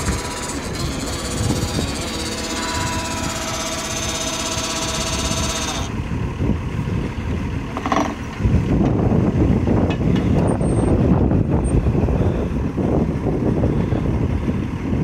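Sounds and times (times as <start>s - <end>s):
high whine: 0.0s - 8.2s
engine running: 0.0s - 15.0s
rough low rumble: 0.0s - 15.0s.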